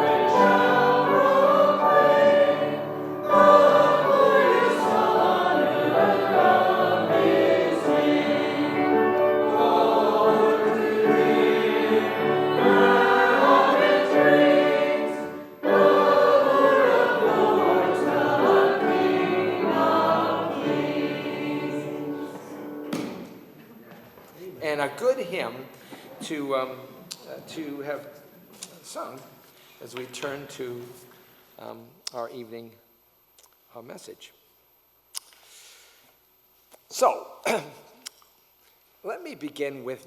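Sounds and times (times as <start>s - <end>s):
congregation singing a hymn: 0.0s - 23.5s
short breaths: 35.4s - 36.2s.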